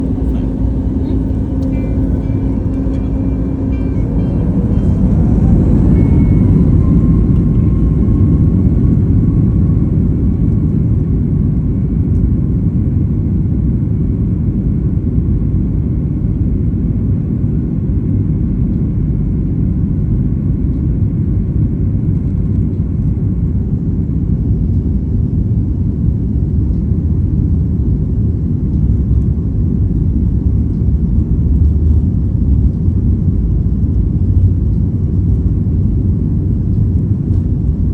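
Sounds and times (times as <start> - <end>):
jet engines whining: 0.0 - 11.3
loud steady rumble: 0.0 - 37.9.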